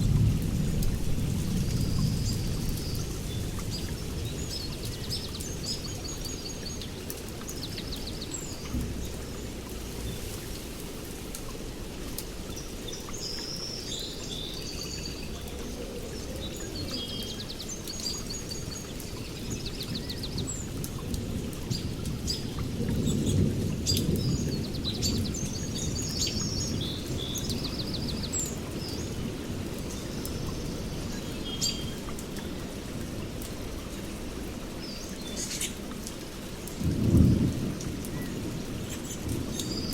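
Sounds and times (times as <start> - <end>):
distant thunder rumble: 0.0 - 5.8, 36.8 - 39.9
small birds chirping: 0.7 - 10.8, 12.5 - 32.8, 34.8 - 39.9.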